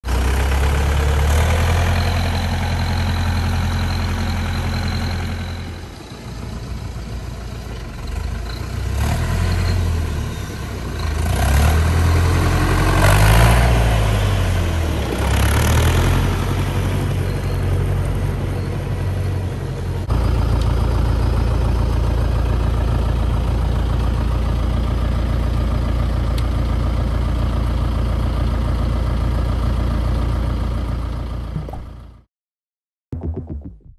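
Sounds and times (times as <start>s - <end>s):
tractor diesel engine revving: 0.1s - 5.5s, 7.9s - 17.2s.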